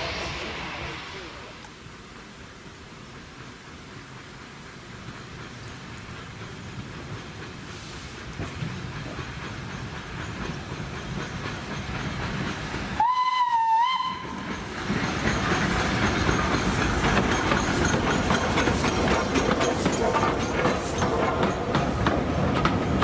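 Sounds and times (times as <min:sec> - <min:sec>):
steam hissing: 0:00.0 - 0:23.0
train wheels clattering on rails: 0:00.0 - 0:23.0
steam locomotive whistle: 0:13.0 - 0:14.4.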